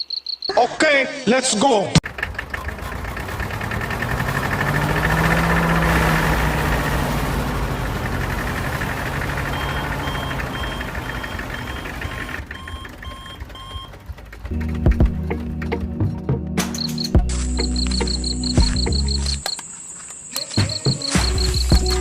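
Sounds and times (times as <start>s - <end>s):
short electronic beeps: 0.0s - 0.6s, 9.4s - 14.0s, 16.7s - 19.6s, 20.2s - 22.0s.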